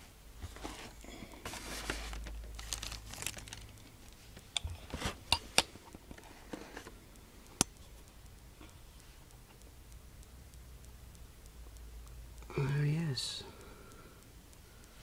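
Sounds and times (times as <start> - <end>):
plastic packaging crinkling: 0.6 - 4.2
sharp clicks and snaps: 2.1 - 15.0.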